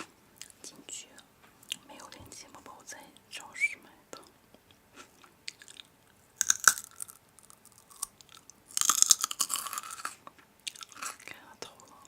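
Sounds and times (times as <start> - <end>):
crunching crisp food: 4.9 - 11.3.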